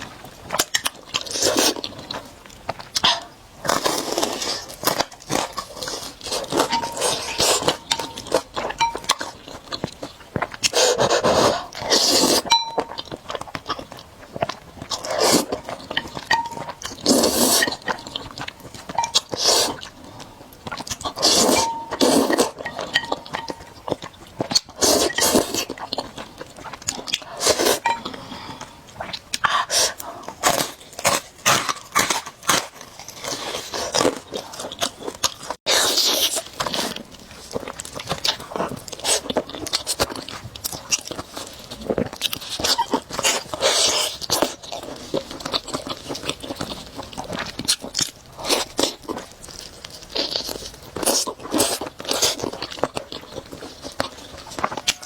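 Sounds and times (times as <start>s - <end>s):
chewing with wet mouth clicks: 0.0s - 55.0s
slurping noodles: 10.6s - 12.5s, 15.0s - 15.6s, 16.9s - 18.1s, 19.3s - 19.9s, 21.1s - 23.0s, 24.7s - 26.0s, 27.2s - 28.7s.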